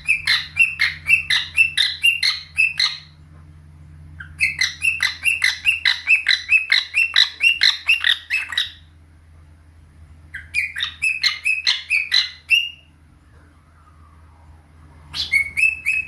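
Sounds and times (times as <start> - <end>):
bird chirping: 0.0 - 3.2, 4.2 - 8.9, 10.3 - 13.0, 15.0 - 16.0.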